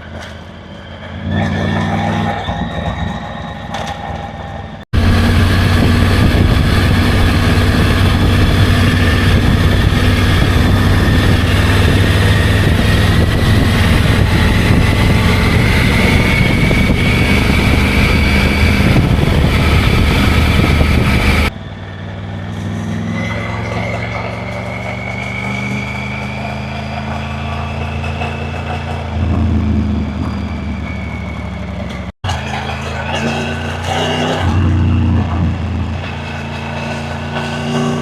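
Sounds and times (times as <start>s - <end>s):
motorcycle engine running: 5.0s - 21.6s
rush of noise: 5.0s - 21.6s.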